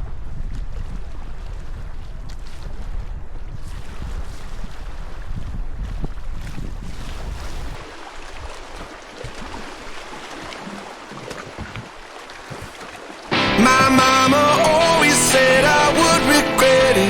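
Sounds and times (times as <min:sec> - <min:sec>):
wind buffeting microphone: 0:00.0 - 0:09.9
water lapping around canoe: 0:00.0 - 0:13.9
music: 0:13.3 - 0:17.0.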